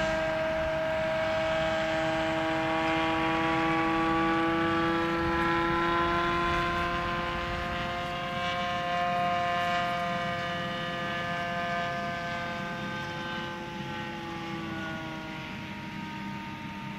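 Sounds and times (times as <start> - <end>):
model airplane engine high-pitched drone: 0.0 - 16.9.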